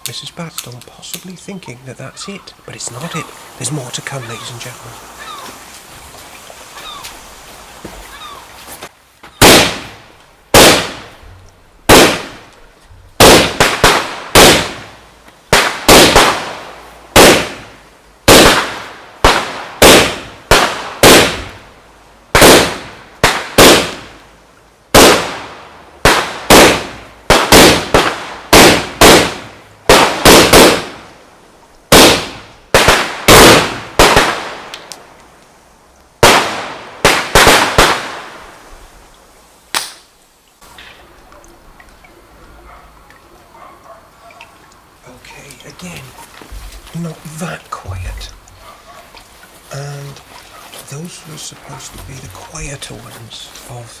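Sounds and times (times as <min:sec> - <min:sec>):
firework bangs: 0:09.4 - 0:11.2, 0:11.9 - 0:12.5, 0:13.2 - 0:21.6, 0:22.3 - 0:24.2, 0:24.9 - 0:31.1, 0:31.9 - 0:34.9, 0:36.2 - 0:38.7.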